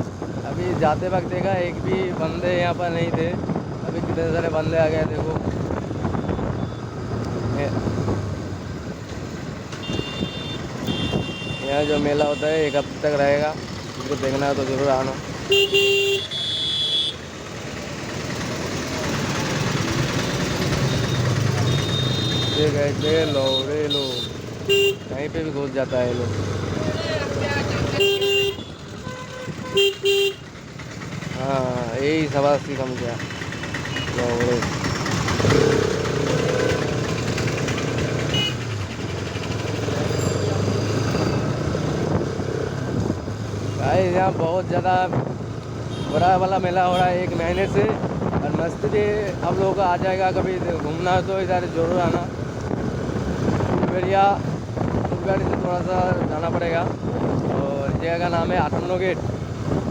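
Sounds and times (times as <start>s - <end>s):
motorcycle engine running: 7.2s - 25.3s, 26.1s - 53.8s.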